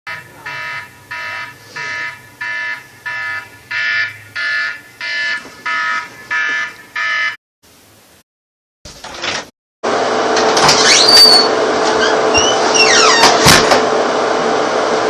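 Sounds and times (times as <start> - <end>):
electronic alarm beeping: 0.1 - 7.4.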